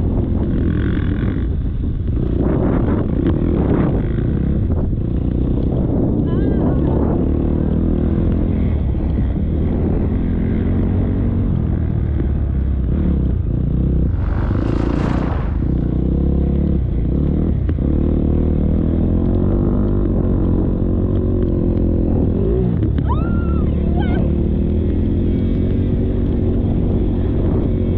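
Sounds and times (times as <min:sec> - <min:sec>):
brief rush of noise: 0:14.0 - 0:16.2
motocross bike engine running: 0:14.0 - 0:18.6.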